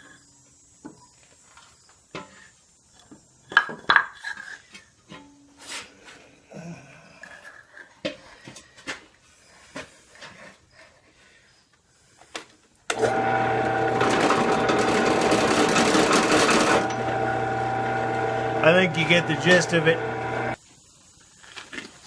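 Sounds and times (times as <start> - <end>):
welding arc crackling and buzzing: 13.0 - 20.6.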